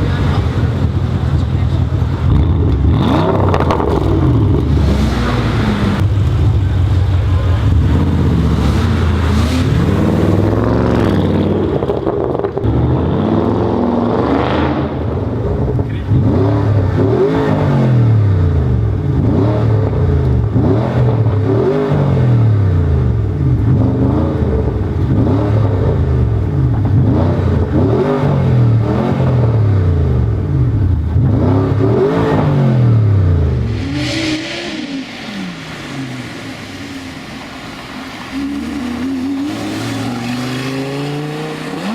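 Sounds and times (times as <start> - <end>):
car engine running: 0.0 - 14.2
car engine revving: 0.0 - 41.9.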